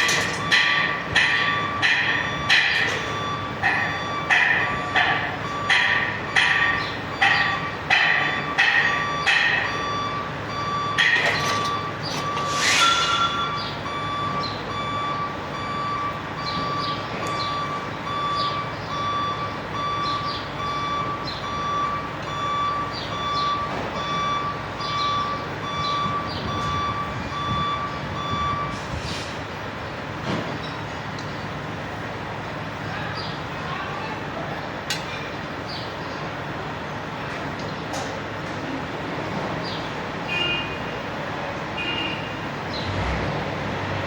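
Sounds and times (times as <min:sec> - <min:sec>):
vehicle reversing alarm beeping: 0:00.0 - 0:29.6, 0:40.2 - 0:41.1, 0:41.8 - 0:43.0.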